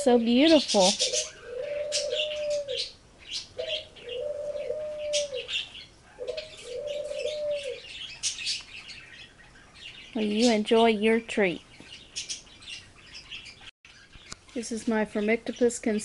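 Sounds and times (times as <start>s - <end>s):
long mid-pitched bird calls: 0.6s - 10.2s.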